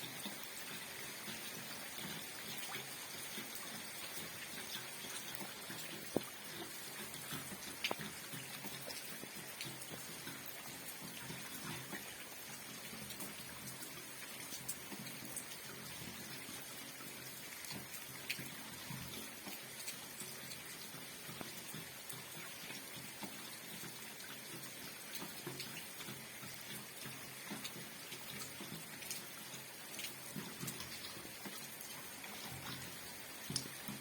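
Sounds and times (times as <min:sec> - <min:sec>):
raindrops tapping: 0:00.0 - 0:16.3, 0:17.1 - 0:34.0
rain falling steadily: 0:00.0 - 0:34.0.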